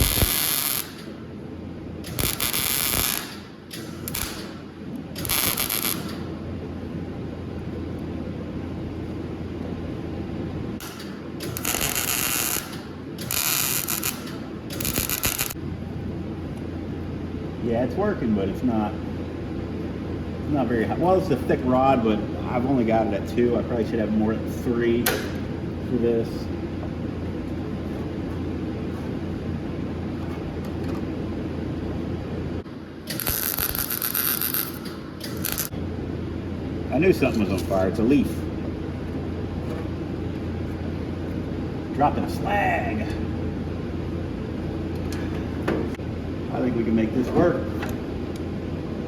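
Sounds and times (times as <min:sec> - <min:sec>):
welding arc crackling and hissing: 0:00.0 - 0:01.1, 0:02.1 - 0:06.2, 0:10.9 - 0:15.6, 0:33.1 - 0:35.7.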